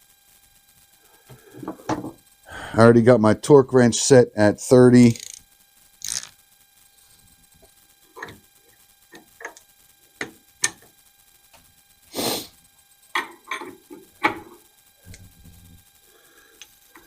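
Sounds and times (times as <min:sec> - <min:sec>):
low hum: 0:13.4 - 0:17.0.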